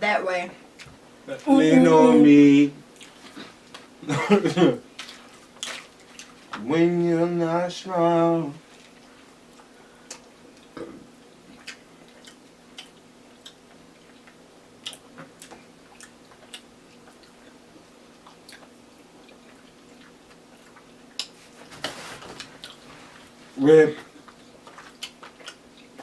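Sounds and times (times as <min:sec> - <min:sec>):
faint steady hum: 0:00.0 - 0:26.0
chewing and mouth sounds: 0:03.0 - 0:03.9, 0:04.9 - 0:06.6, 0:08.7 - 0:21.7, 0:22.4 - 0:23.3, 0:24.0 - 0:26.0.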